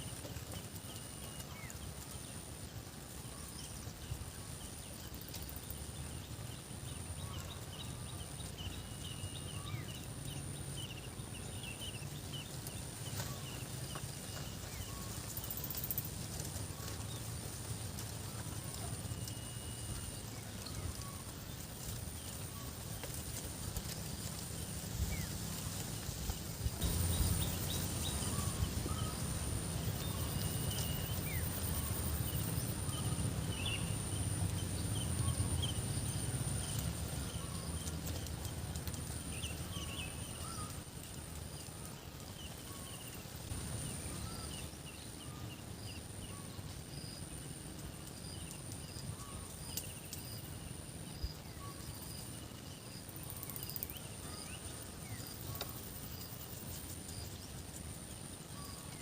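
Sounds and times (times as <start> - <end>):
low rumble: 24.0 - 40.3.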